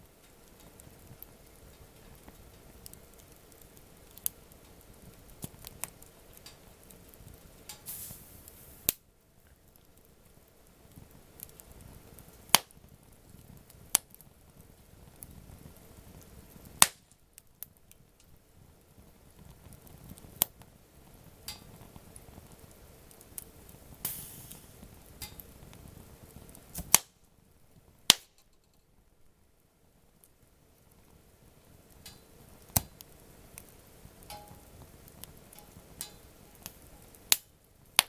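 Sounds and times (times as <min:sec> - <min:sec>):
burning wood popping: 0:00.0 - 0:29.1, 0:30.2 - 0:38.0
campfire crackling: 0:00.0 - 0:38.0
brief hiss: 0:07.8 - 0:08.9, 0:24.0 - 0:24.8.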